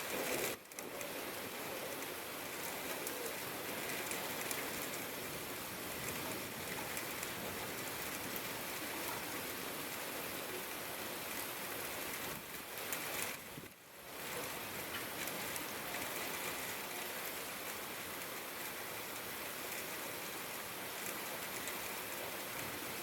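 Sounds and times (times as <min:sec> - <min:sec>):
rain drops tapping: 0:00.0 - 0:23.0.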